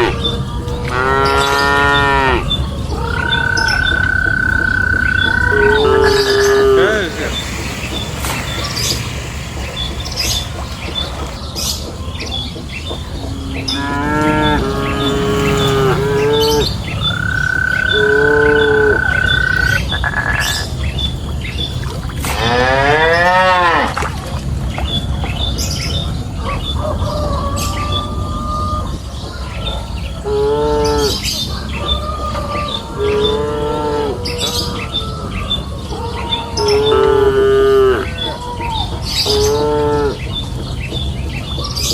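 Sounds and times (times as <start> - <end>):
cattle mooing: 0.0 - 7.4, 13.2 - 20.6
steady background hiss: 0.0 - 22.4
high steady tone: 2.2 - 11.2.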